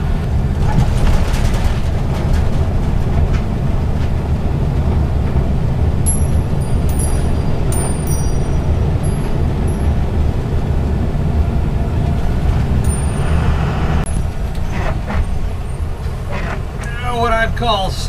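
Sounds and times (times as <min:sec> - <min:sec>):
bus engine and road rumble: 0:00.0 - 0:18.0
cabin rattles and squeaks: 0:14.2 - 0:17.0.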